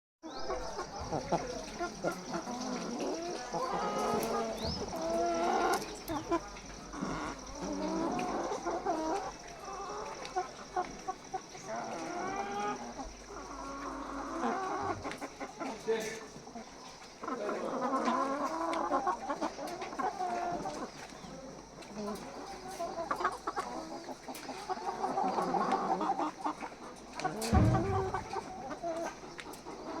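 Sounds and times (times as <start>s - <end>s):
chickens calling: 0.2s - 30.0s
low thump: 27.5s - 28.8s.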